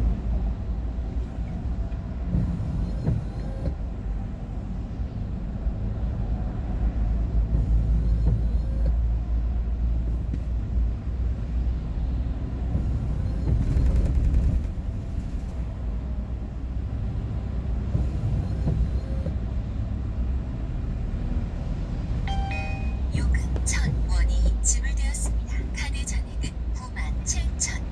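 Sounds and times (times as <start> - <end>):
vehicle interior road rumble: 0.0 - 27.9.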